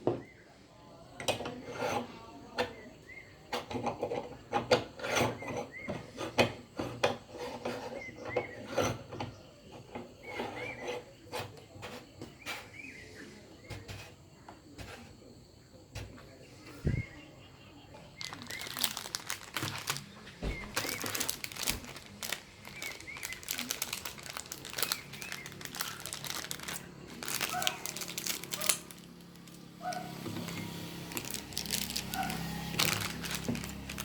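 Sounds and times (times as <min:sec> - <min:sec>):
candies crinkling and crackling: 0:18.0 - 0:34.0.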